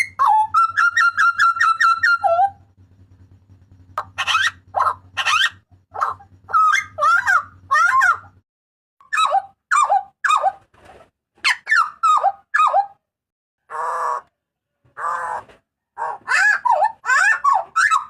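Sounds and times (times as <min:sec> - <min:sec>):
harsh buzzy bird notes: 0:00.0 - 0:08.4.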